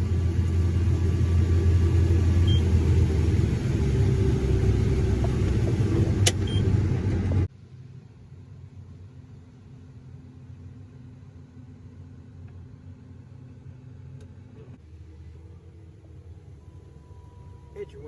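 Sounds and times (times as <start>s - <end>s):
diesel engine rumbling: 0.0s - 18.0s.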